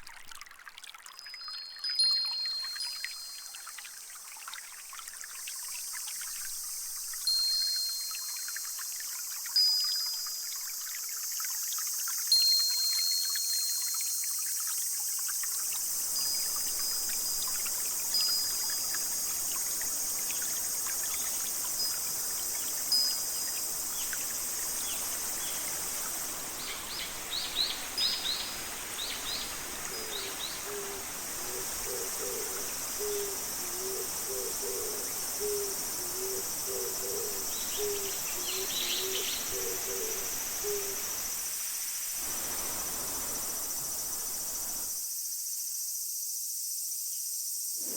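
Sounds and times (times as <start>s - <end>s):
songbird chirps: 1.1s - 4.0s, 16.0s - 41.3s
high-pitched insect chorus: 1.2s - 47.9s
owl hooting: 30.0s - 41.0s.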